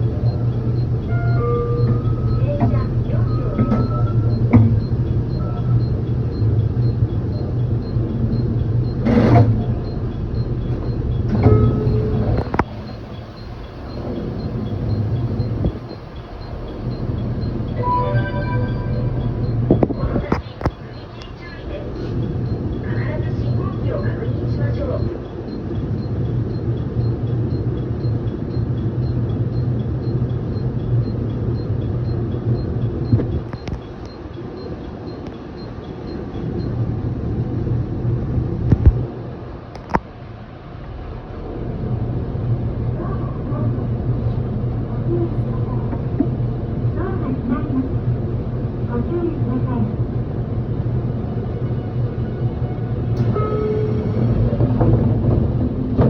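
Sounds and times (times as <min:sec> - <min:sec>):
train motors humming: 0:00.0 - 0:28.5, 0:32.2 - 0:56.0
train rattle: 0:00.0 - 0:29.4, 0:50.0 - 0:56.0.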